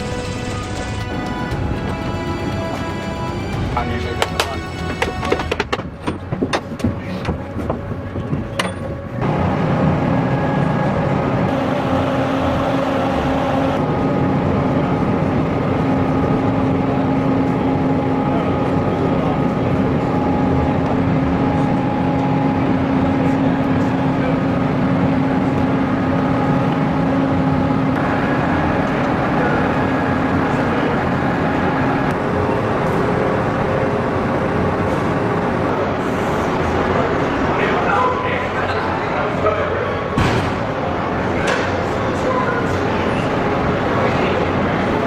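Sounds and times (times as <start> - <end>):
vehicle engine running: 0.0 - 5.8
engine droning: 0.0 - 45.0.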